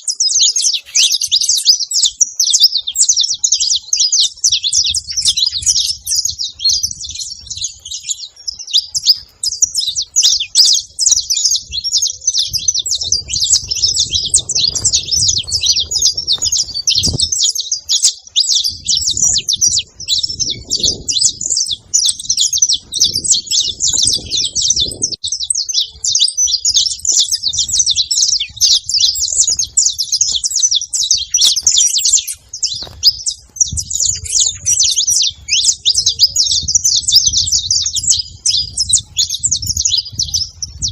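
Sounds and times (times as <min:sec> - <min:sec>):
finches chirping and singing: 0:00.0 - 0:40.9.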